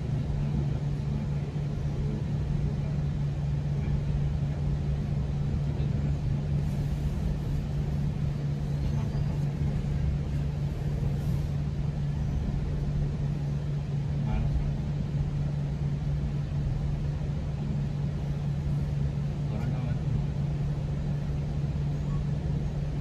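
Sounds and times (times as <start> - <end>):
constant low hum: 0.0 - 23.0
train running rumble: 0.0 - 23.0.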